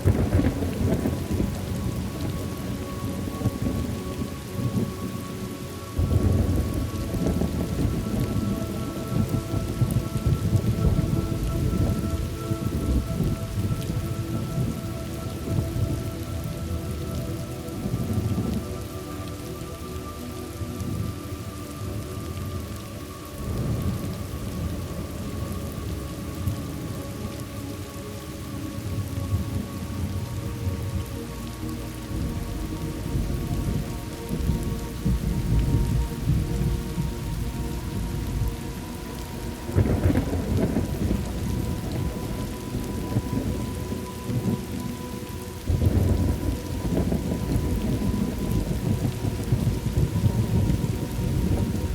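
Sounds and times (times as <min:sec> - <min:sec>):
rolling thunder: 0:00.0 - 0:05.3, 0:05.9 - 0:18.8, 0:32.1 - 0:44.9, 0:45.6 - 0:51.9
steady rain: 0:00.0 - 0:51.9.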